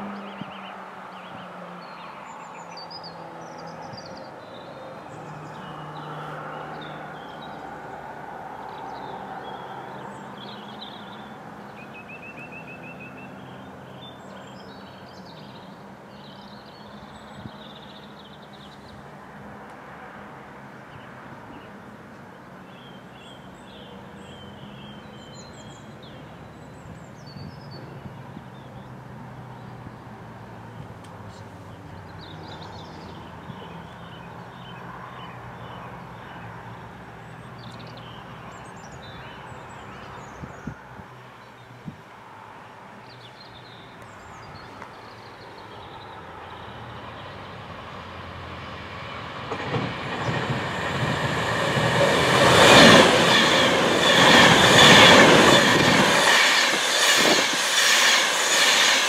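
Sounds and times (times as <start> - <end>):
distant traffic rumble: 0.0 - 59.0
small birds chirping and singing: 8.6 - 19.0, 31.3 - 40.8.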